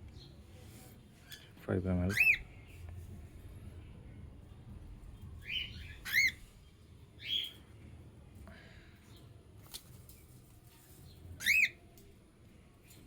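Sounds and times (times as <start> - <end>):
cockatiel chirps: 5.5 - 6.4, 11.4 - 11.8
raspy cockatiel calls: 6.0 - 6.4, 11.4 - 11.8.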